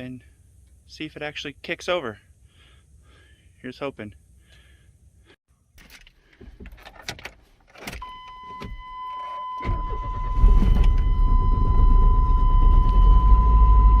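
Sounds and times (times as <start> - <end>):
high warning chime: 8.0 - 14.0
truck engine cranking and starting: 9.1 - 14.0.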